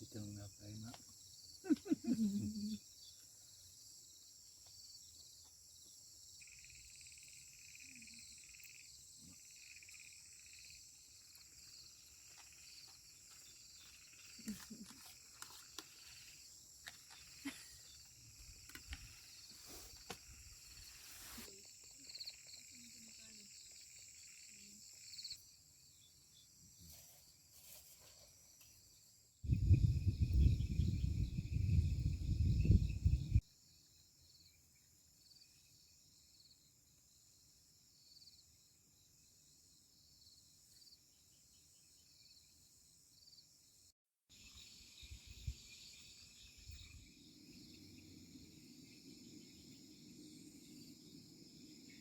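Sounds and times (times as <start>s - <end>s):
crickets and insects chirping: 0.0s - 52.0s.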